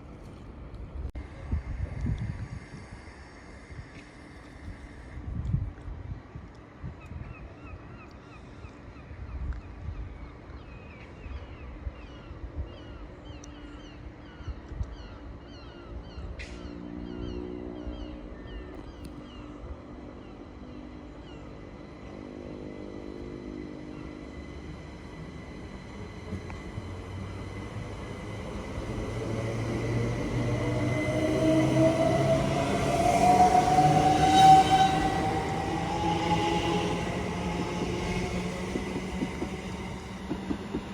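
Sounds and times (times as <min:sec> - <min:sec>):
wheels rumbling on rail: 0:16.4 - 0:40.9.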